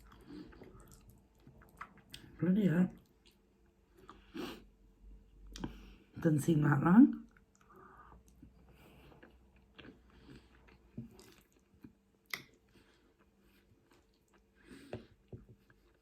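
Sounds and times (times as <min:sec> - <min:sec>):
person chewing and biting: 0:08.3 - 0:16.0.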